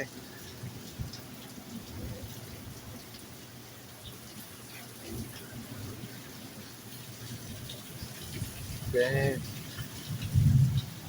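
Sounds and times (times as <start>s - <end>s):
heavy rain: 0.0s - 11.0s
gusty wind rumbling: 5.0s - 11.0s.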